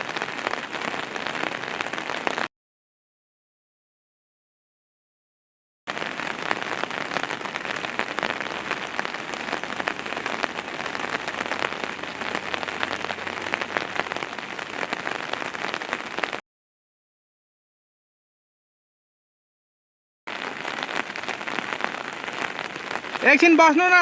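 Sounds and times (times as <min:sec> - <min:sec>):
heavy rain falling: 0:00.0 - 0:02.5, 0:05.9 - 0:16.4, 0:20.3 - 0:24.0.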